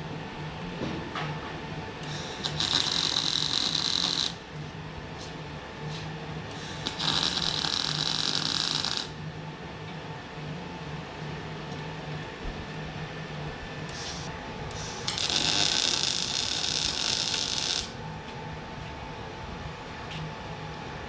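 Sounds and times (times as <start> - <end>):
welding arc hissing and crackling: 2.0 - 4.4, 5.9 - 9.2, 13.9 - 18.0.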